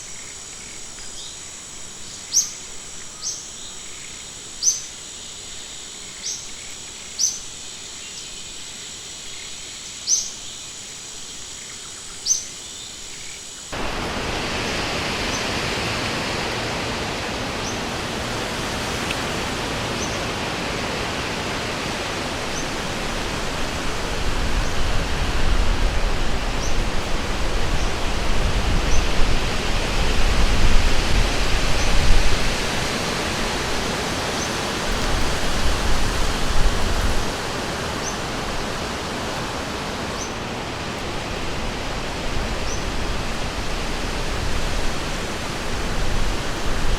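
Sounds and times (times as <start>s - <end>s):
high insect drone: 0.0s - 46.9s
river flowing: 13.7s - 46.9s.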